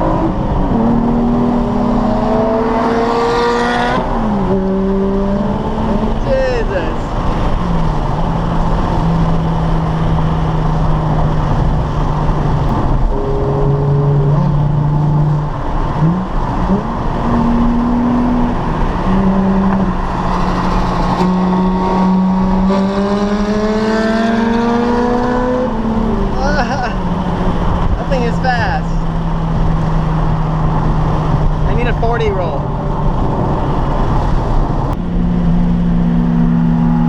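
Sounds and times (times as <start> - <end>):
road and wind noise: 0.0 - 37.0
sports car engine running: 0.0 - 37.0.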